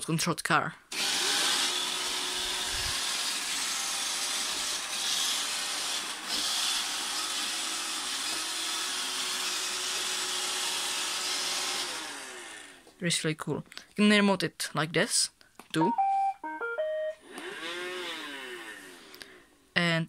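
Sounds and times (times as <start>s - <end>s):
robot vacuum running: 0.9s - 12.7s.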